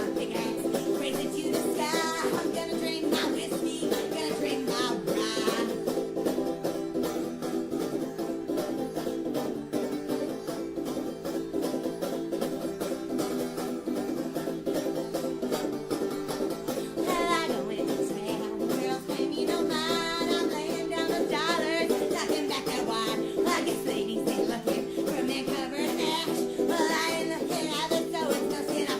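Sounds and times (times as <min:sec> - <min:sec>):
person singing: 0:00.0 - 0:06.0, 0:16.7 - 0:28.9
plucked string music: 0:00.0 - 0:28.9.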